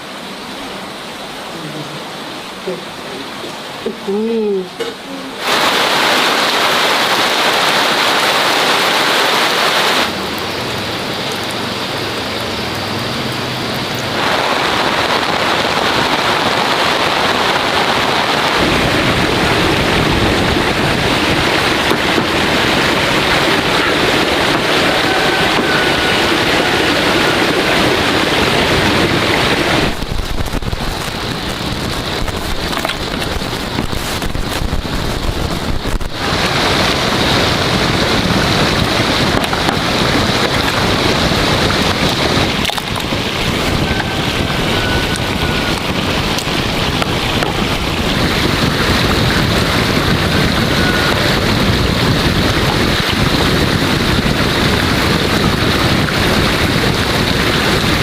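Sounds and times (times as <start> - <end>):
loud rushing water: 0.0 - 58.0.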